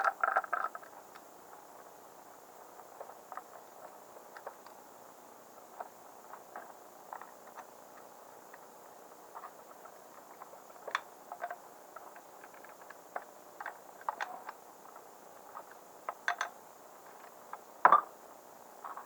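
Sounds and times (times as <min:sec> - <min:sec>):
small parts clicking and tapping: 0:00.0 - 0:01.3, 0:05.8 - 0:08.6, 0:09.3 - 0:18.1.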